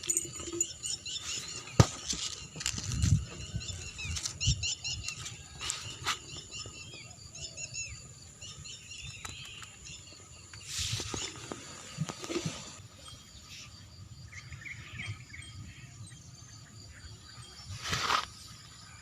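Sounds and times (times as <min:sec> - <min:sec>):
small birds chirping: 0:00.0 - 0:18.7
rustles and knocks: 0:01.6 - 0:03.4.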